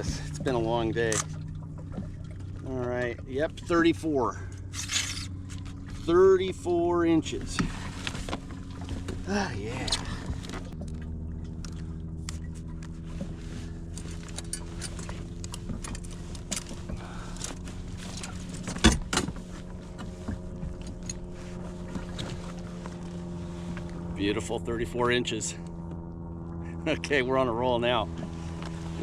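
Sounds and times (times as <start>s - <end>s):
fishing gear clicking and rattling: 0.0s - 2.7s, 4.5s - 6.1s, 13.7s - 23.1s
steady low hum: 0.0s - 29.0s.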